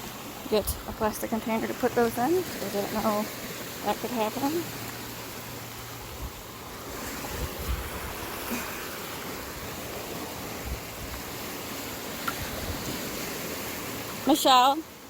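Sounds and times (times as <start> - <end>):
gentle surf on beach: 0.0 - 15.0
wind buffeting microphone: 6.0 - 8.5, 9.4 - 11.6, 12.2 - 13.5.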